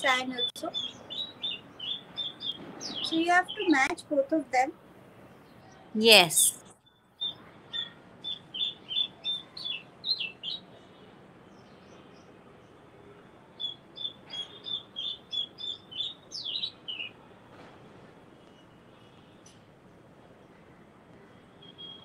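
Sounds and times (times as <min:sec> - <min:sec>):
small bird chirping: 0:00.0 - 0:04.0, 0:06.6 - 0:10.8, 0:13.6 - 0:17.2.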